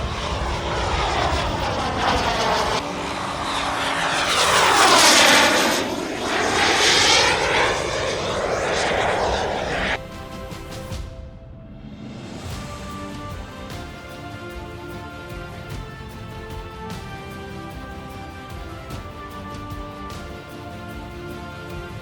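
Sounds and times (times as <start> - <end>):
model jet flying past: 0.0 - 10.9.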